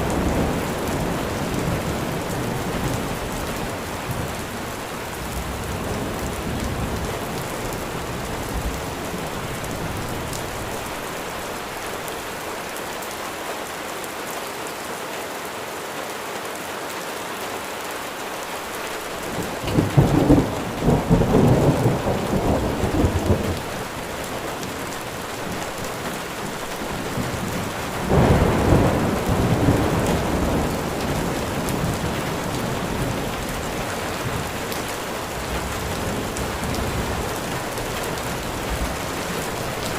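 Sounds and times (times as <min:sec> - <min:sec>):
steady rain falling: 0:00.0 - 0:39.9
thunder rumbling: 0:19.2 - 0:39.9.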